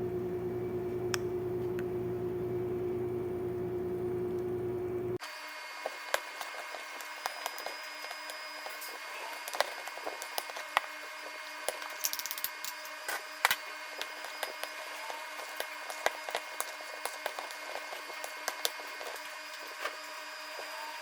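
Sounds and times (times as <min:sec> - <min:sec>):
steady hum: 0:00.0 - 0:21.0
cooking clicks and crackles: 0:05.9 - 0:21.0.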